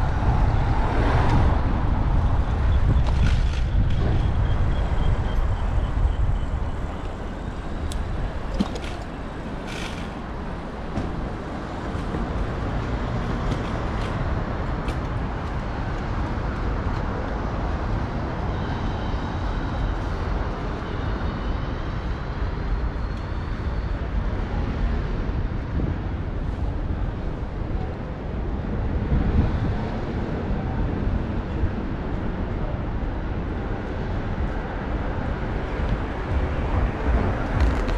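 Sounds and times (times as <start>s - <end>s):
tyre and road traffic noise: 0.0s - 37.9s
wind rumbling on microphone: 0.0s - 37.9s.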